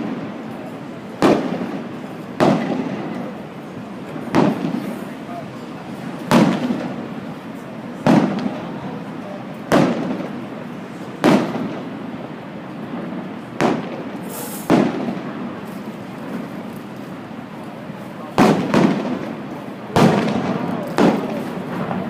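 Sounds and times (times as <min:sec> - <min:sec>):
fireworks booming: 0:00.0 - 0:22.0
steady background noise: 0:00.0 - 0:22.0
short hiss: 0:14.2 - 0:14.8.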